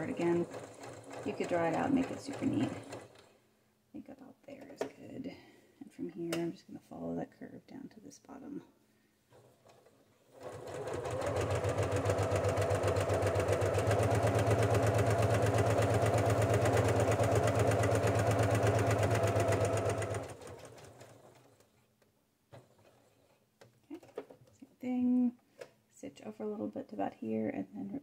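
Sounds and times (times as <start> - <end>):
electric sewing machine stitching: 0.0 - 3.4, 10.3 - 21.7.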